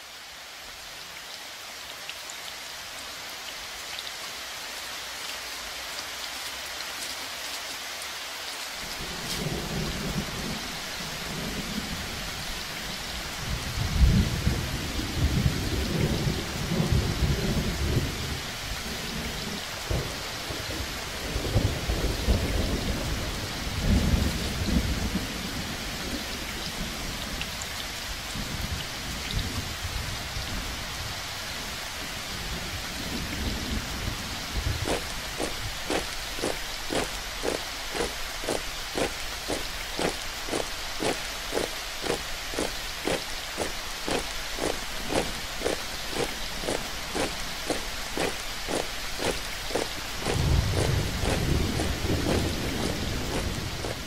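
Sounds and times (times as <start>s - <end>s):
steady rain: 0.0s - 54.0s
rolling thunder: 33.2s - 54.0s.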